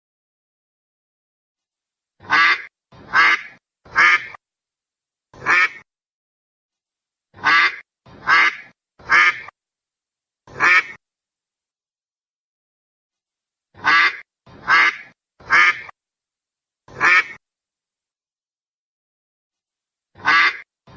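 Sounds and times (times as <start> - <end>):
duck quacking: 2.2 - 4.4, 5.4 - 5.9, 7.4 - 9.5, 10.5 - 11.0, 13.8 - 16.0, 16.9 - 17.4, 20.2 - 20.7.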